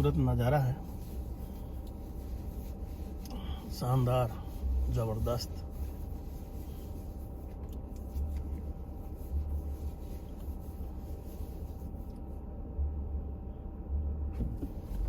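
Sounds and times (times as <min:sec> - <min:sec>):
car interior engine and road noise: 0:00.0 - 0:15.0.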